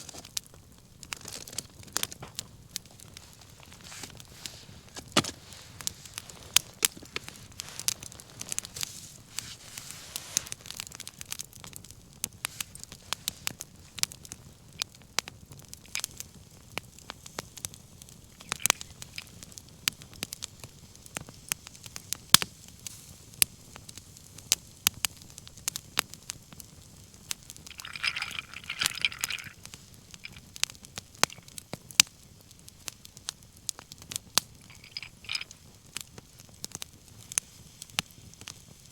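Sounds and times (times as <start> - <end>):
bonfire crackling: 0.0 - 38.9
fire pops and snaps: 0.0 - 38.9
brief hiss: 7.2 - 10.9.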